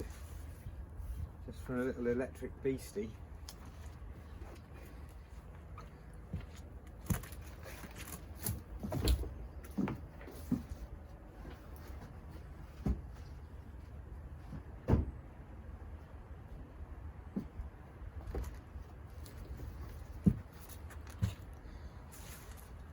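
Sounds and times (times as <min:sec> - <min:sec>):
knocks and clunks: 0:14.4 - 0:15.3.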